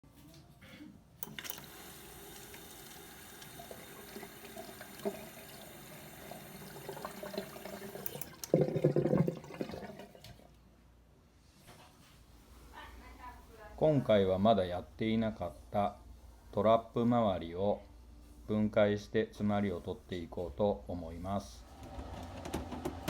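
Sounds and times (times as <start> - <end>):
water running down a drain: 1.2 - 10.6
drain gurgling: 1.3 - 10.6.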